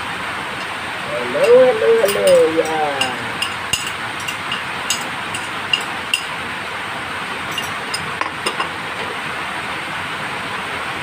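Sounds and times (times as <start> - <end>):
steady hiss: 0.0 - 11.0
metal spoon clinking on dish: 1.3 - 6.4, 7.5 - 8.7.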